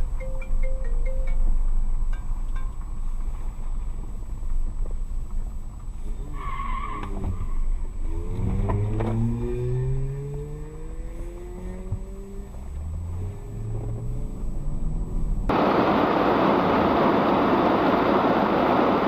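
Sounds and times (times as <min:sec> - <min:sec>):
car road rumble: 0:00.0 - 0:19.0
engine accelerating: 0:08.0 - 0:19.0.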